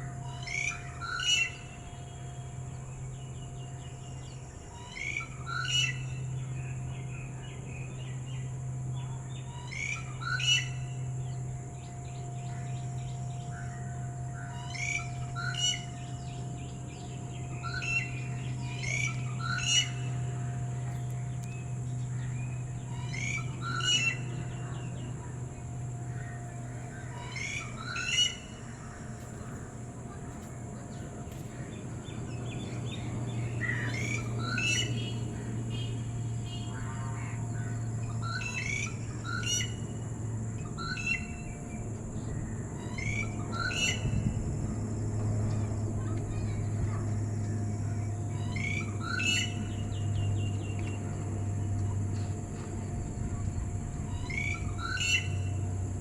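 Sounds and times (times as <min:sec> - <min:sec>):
steady low hum: 0:00.0 - 0:56.0
bird chirping calls: 0:09.3 - 0:41.6, 0:45.5 - 0:55.7.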